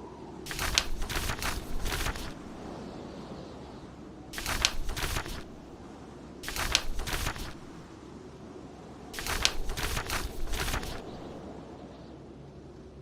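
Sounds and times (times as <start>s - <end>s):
book pages turning: 0.5s - 2.6s, 4.4s - 5.7s, 6.4s - 7.8s, 9.2s - 11.4s.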